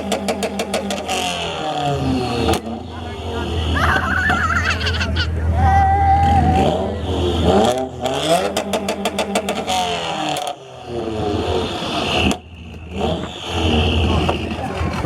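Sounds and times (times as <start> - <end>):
sharp exhaust pops: 0.0 - 1.9, 7.4 - 10.6, 11.3 - 15.0
car engine revving: 0.0 - 15.0.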